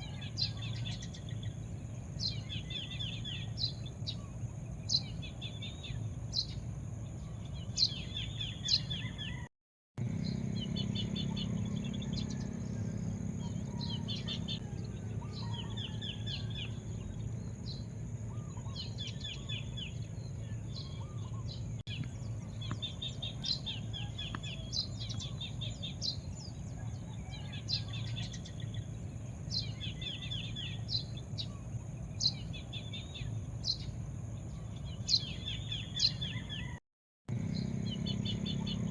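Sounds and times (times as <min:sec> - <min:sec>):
small birds chirping: 0:00.0 - 0:38.9
steady low rumble: 0:10.0 - 0:27.2.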